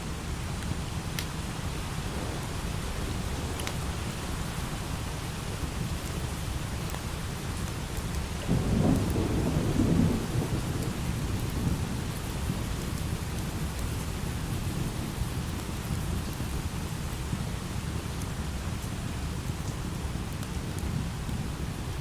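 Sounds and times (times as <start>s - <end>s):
light rain: 0.0s - 22.0s
thunder rumbling: 0.8s - 16.9s.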